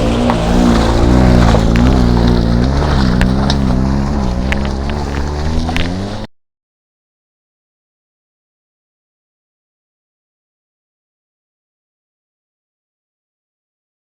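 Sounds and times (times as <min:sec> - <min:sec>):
car engine revving hard: 0:00.0 - 0:06.3.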